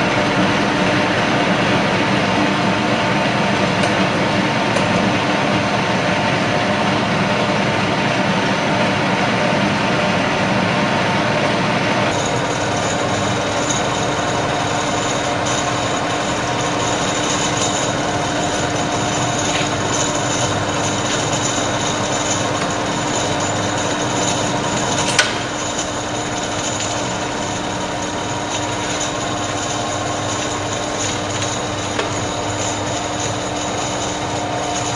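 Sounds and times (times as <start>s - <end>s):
drill motor running: 12.1s - 34.9s.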